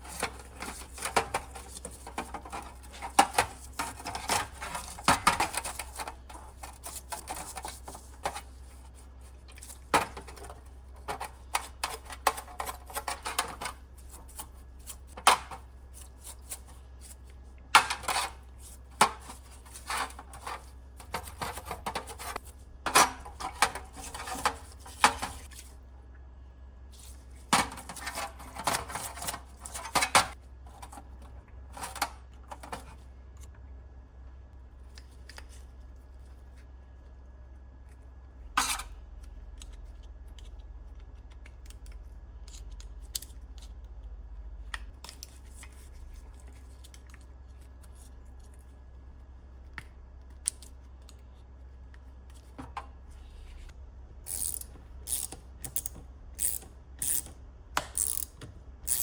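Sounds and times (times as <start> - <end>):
steady low hum: 32.4 - 59.0.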